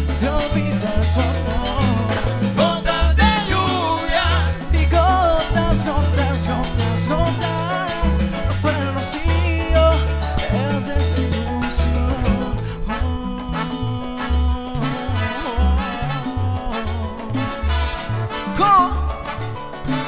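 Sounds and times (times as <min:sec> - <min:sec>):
latin dance band music: 0:00.0 - 0:20.0.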